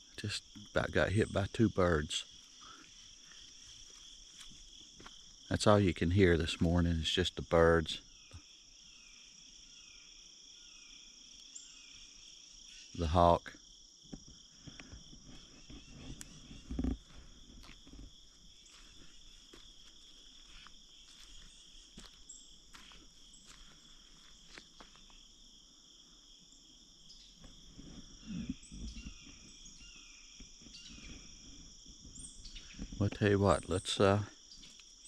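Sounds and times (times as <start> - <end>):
insects buzzing: 0.0 - 35.0
faint bird chirps: 8.0 - 13.4, 26.6 - 35.0.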